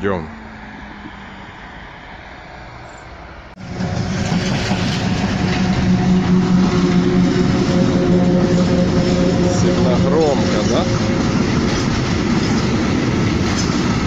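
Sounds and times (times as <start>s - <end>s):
locomotive multi-tone hum: 0.0s - 14.0s
locomotive wheels rumbling: 3.5s - 14.0s.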